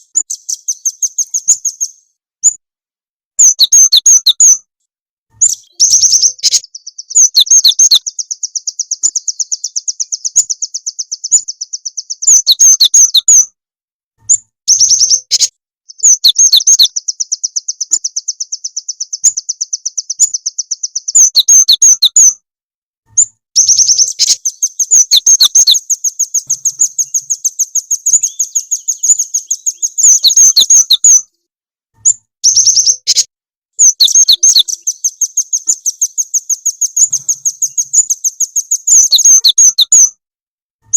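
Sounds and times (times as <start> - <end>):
songbird rapid trilling: 5.4 - 13.3, 23.6 - 31.2, 32.4 - 40.1.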